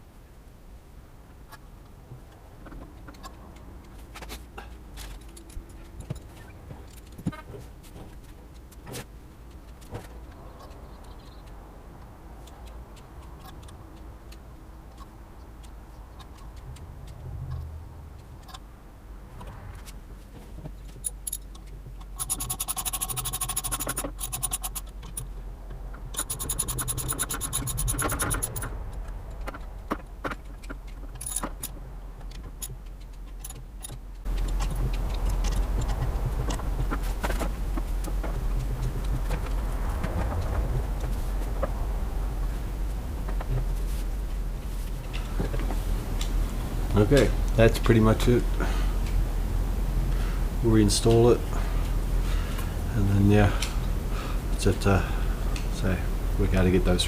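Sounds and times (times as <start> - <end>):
ratchet wrench ticking: 20.9 - 25.3, 26.1 - 29.6, 30.2 - 36.6
metal hand tools clinking: 26.2 - 28.7.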